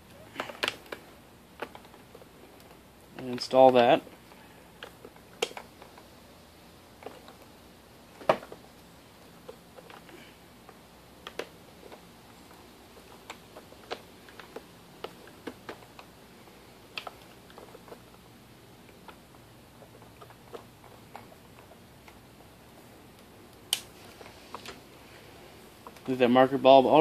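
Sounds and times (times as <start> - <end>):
plastic clicks and taps: 4.8 - 6.0.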